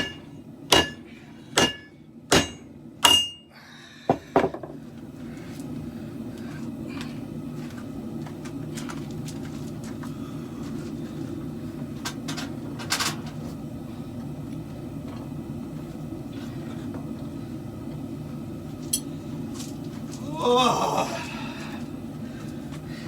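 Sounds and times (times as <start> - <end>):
forge roaring: 20.2 - 21.8.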